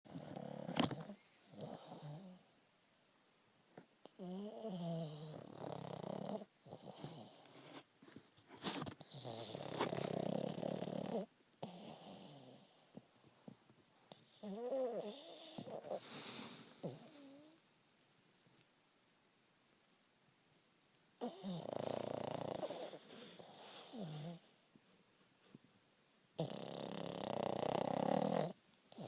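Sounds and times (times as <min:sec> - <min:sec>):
dog snoring loudly: 0:00.1 - 0:02.4, 0:04.2 - 0:07.5, 0:09.1 - 0:12.8, 0:14.2 - 0:16.0, 0:21.2 - 0:24.4, 0:26.4 - 0:29.0.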